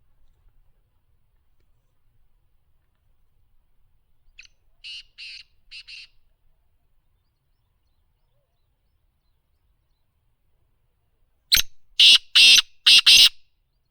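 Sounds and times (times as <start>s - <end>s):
bird harsh rasping call: 4.8s - 6.1s, 12.0s - 13.4s.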